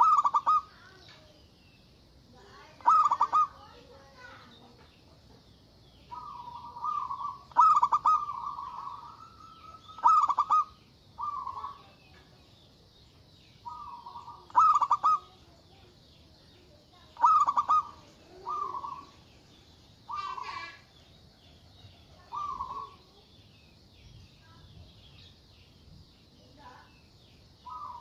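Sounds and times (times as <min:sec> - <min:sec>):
dove cooing: 0:00.0 - 0:00.9, 0:02.8 - 0:04.4, 0:06.1 - 0:12.0, 0:13.6 - 0:15.6, 0:17.0 - 0:19.2, 0:20.1 - 0:20.9, 0:22.1 - 0:23.1, 0:27.6 - 0:28.0.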